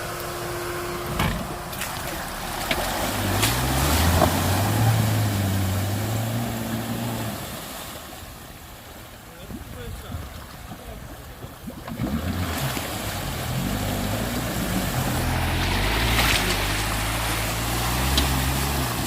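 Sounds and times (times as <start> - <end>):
off-road engine revving: 0.0 - 7.7, 11.8 - 19.0
water splashing: 0.0 - 19.0.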